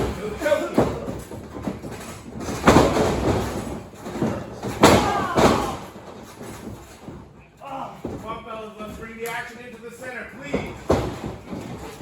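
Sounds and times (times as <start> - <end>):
wrestlers slamming onto ring: 0.0 - 7.3, 10.5 - 12.0.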